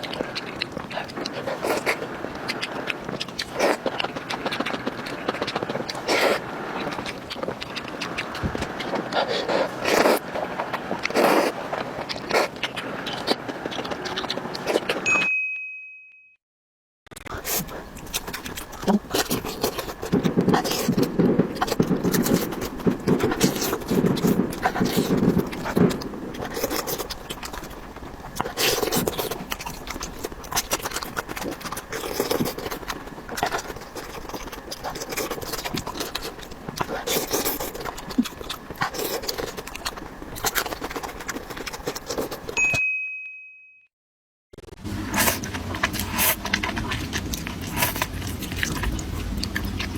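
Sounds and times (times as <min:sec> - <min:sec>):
close eating sounds and crunching: 0:00.0 - 0:15.1, 0:17.1 - 0:42.6, 0:44.6 - 0:49.9
wet chewing: 0:00.0 - 0:15.1, 0:17.3 - 0:42.6, 0:44.8 - 0:49.9
thin high tone: 0:15.1 - 0:16.4, 0:42.6 - 0:43.9.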